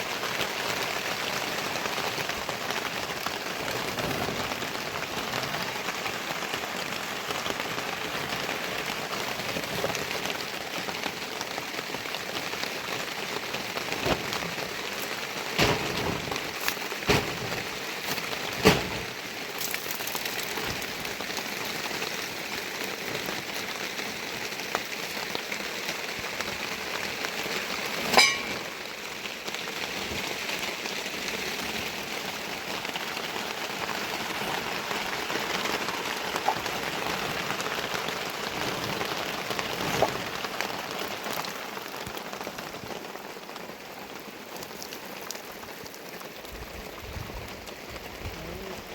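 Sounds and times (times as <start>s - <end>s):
rain falling: 0.0s - 48.9s
sharp knocks: 15.6s - 16.5s, 17.1s - 17.7s, 18.6s - 19.1s.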